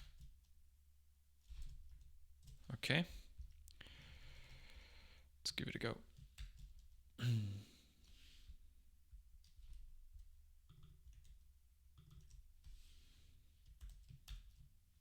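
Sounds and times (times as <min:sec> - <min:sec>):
computer keyboard clicks: 0:06.1 - 0:07.0, 0:10.6 - 0:11.4, 0:12.0 - 0:12.5, 0:13.6 - 0:14.7.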